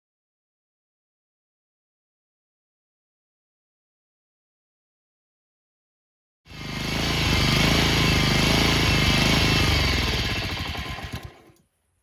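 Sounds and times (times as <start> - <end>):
lawn mower engine running: 6.5 - 11.6.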